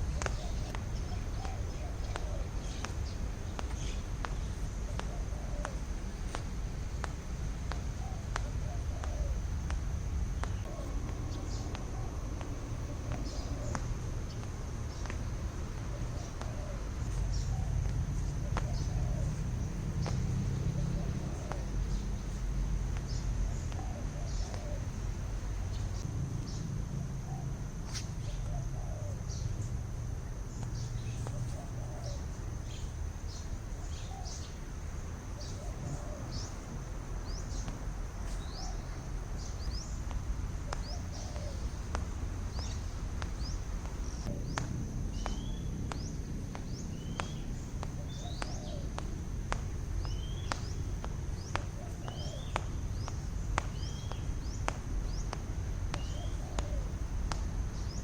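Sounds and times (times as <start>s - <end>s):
sharp clicks: 0.0s - 26.5s, 30.5s - 58.0s
steady low rumble: 0.0s - 58.0s
high bird chirps: 35.3s - 49.0s, 49.6s - 57.0s.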